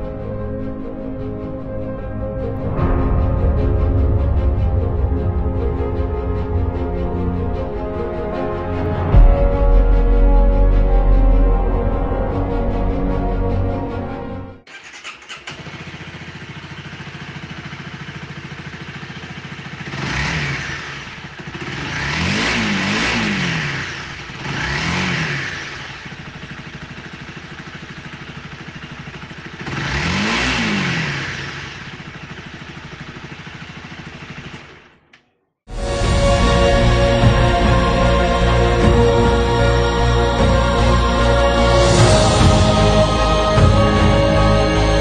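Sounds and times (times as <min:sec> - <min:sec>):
motorcycle engine idling and revving: 0:13.9 - 0:45.0.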